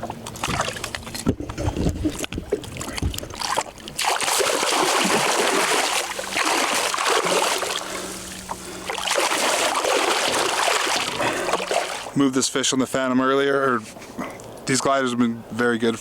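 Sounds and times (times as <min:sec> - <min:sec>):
water splashing and sloshing: 0:00.0 - 0:12.4.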